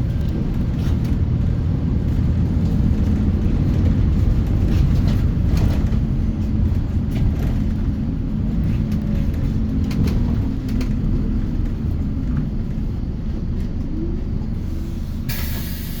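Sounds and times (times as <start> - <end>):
body rattles and clicks: 0.0 - 14.0
bus engine and road rumble: 0.0 - 16.0
hiss: 15.0 - 16.0.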